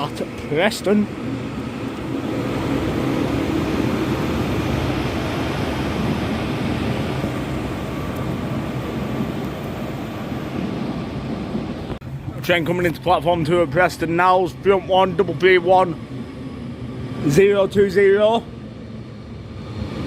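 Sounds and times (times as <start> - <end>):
train wheels running with hum: 0.0 - 20.0.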